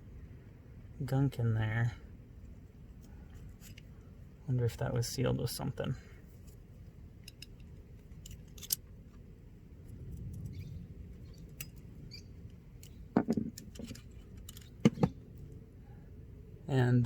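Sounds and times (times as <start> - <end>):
small parts clicking and rustling: 2.4 - 4.2, 6.2 - 15.6.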